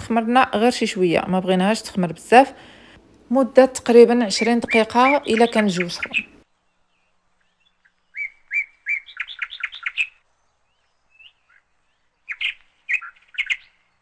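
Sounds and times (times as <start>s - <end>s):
bird chirping: 4.0s - 14.0s.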